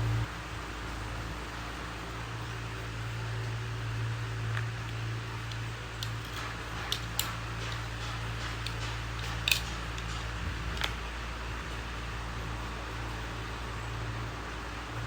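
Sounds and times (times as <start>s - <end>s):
steady low hum: 0.0s - 15.0s
tools clicking and tapping: 4.5s - 11.1s.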